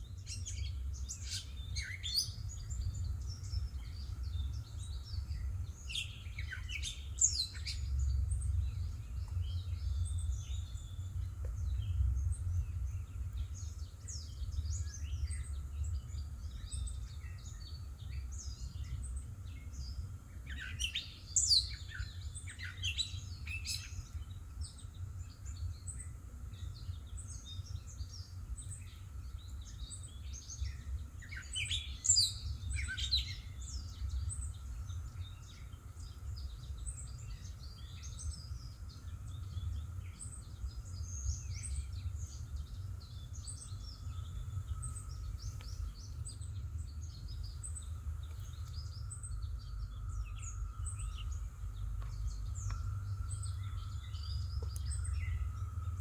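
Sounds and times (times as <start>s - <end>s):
birds chirping and singing: 0.0s - 56.0s
faint high hum: 0.0s - 56.0s
low rumble: 41.9s - 56.0s.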